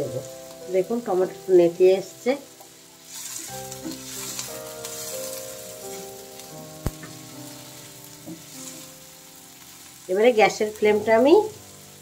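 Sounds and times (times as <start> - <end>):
onions and tomatoes sizzling: 0.0 - 12.0
spatula stirring in pan: 3.0 - 10.1
spatula tapping pan: 3.7 - 8.9.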